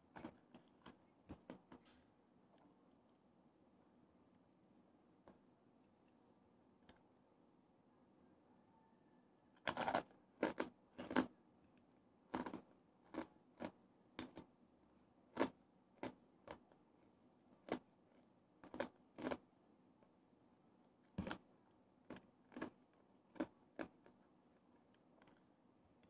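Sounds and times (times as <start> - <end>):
crunchy food chewing: 0.1 - 2.0, 9.6 - 11.4, 12.3 - 14.5, 15.3 - 16.7, 17.6 - 17.9, 18.6 - 19.5, 21.0 - 24.3.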